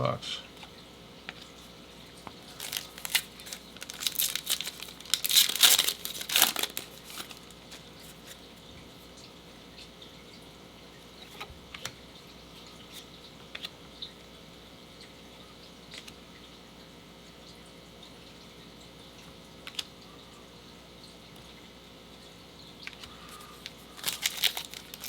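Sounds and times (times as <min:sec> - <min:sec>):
foil wrapper tearing and crinkling: 0:02.5 - 0:08.4, 0:23.3 - 0:25.0.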